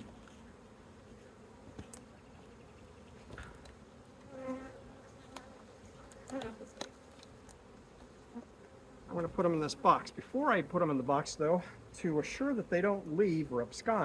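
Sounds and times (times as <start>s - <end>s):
bee buzzing past close: 0.0s - 10.0s
bees buzzing: 0.0s - 14.0s.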